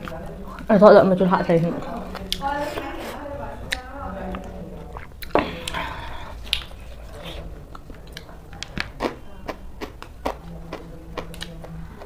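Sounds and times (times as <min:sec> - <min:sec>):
chewing crisp cabbage: 0:01.8 - 0:12.0
wet mouth clicks: 0:02.2 - 0:03.1, 0:03.7 - 0:06.8, 0:07.7 - 0:11.8.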